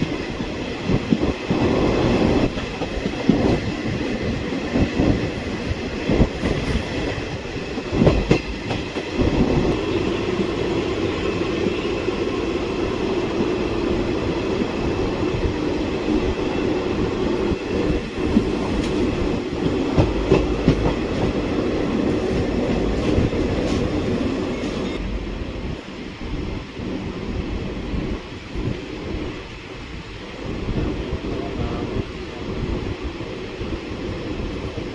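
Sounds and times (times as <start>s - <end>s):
train wheels rumbling on rails: 0.0s - 34.9s
wheels clacking over rail joints: 18.0s - 24.8s.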